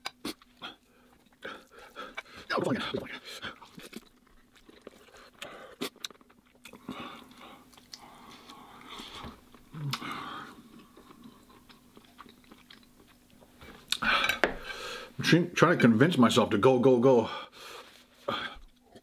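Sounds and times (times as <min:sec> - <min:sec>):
person chewing noodles: 0:00.0 - 0:14.9.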